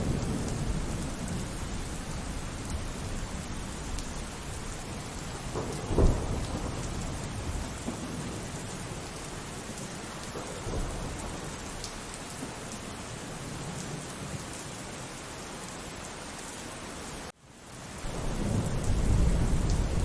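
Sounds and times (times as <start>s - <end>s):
thunder clap and rumbling: 0.0s - 11.9s, 18.0s - 20.0s
steady rain: 0.0s - 20.0s.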